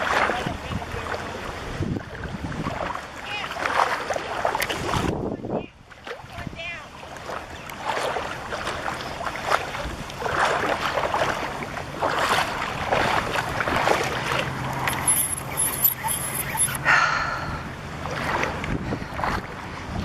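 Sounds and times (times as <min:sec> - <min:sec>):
distant boat motor hum: 0:00.0 - 0:20.0
footsteps splashing through water: 0:02.1 - 0:05.1, 0:07.0 - 0:16.8, 0:18.0 - 0:20.0.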